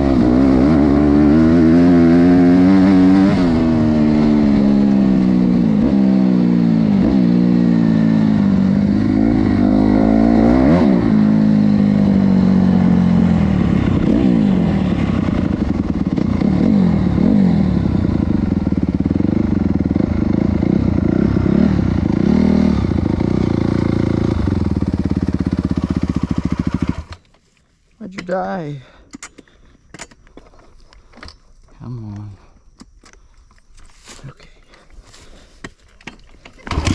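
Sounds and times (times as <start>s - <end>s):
dirt bike engine revving: 0.0s - 27.2s, 36.7s - 36.9s.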